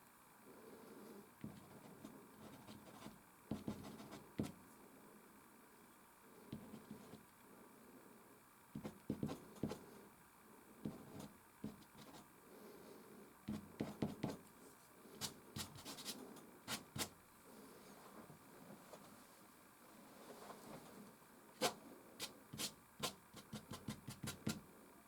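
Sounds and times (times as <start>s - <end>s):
pastel stick scratching canvas: 1.4s - 4.5s, 15.2s - 17.2s, 21.6s - 24.6s.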